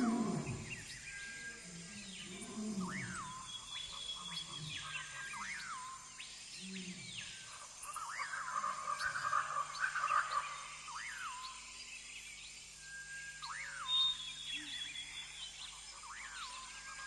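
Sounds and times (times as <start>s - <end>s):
low animal calls: 0.0s - 3.4s
birds calling: 0.0s - 11.6s.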